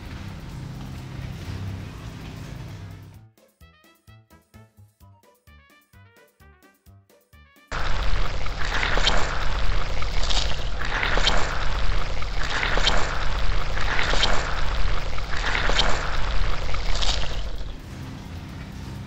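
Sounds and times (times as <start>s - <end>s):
low machine hum: 7.7s - 19.0s.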